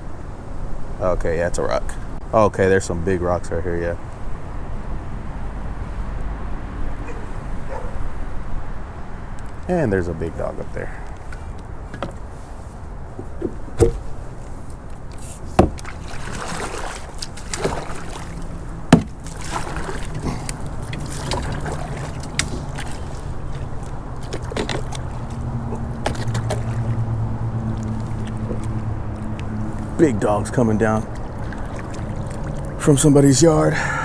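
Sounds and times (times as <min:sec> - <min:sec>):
low steady hum: 0:00.0 - 0:34.0
paddle splashing water: 0:10.3 - 0:34.0
paddle knocking hull: 0:11.3 - 0:34.0.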